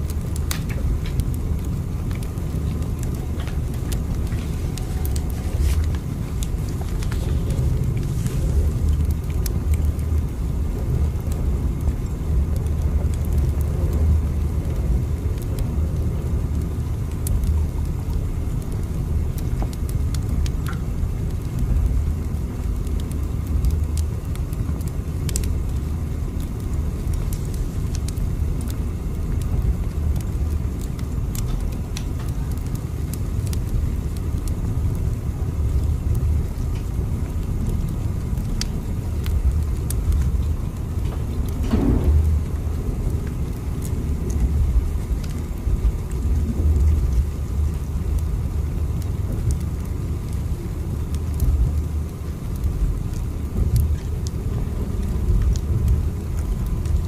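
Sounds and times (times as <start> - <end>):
train rumble inside carriage: 0.4 - 17.6, 34.7 - 48.0, 51.4 - 57.0
faint clicks and rattles: 37.6 - 48.3.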